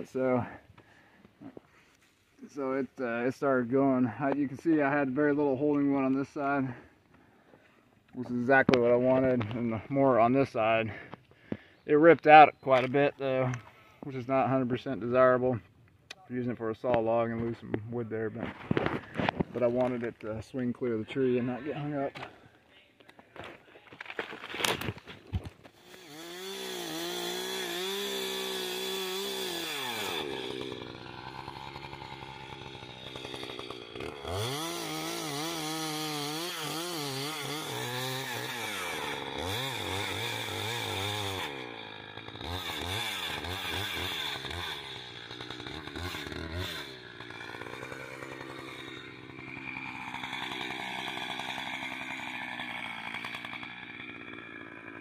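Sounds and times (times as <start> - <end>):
chainsaw revving: 25.6 - 55.0.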